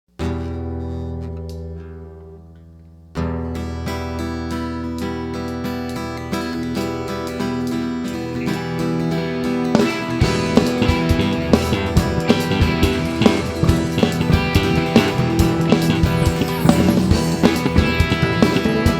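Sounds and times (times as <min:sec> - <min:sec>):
bass: 0:00.1 - 0:18.9
strummed acoustic guitar: 0:00.1 - 0:18.9
drum kit beat: 0:09.5 - 0:18.9.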